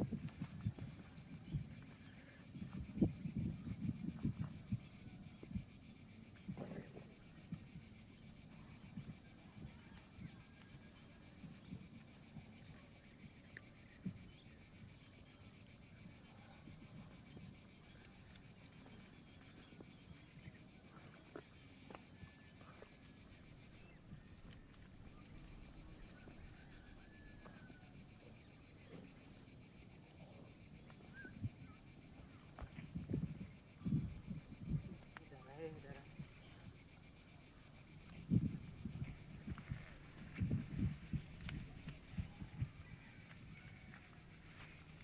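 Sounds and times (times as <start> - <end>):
high-pitched insect chorus: 0.0 - 45.0.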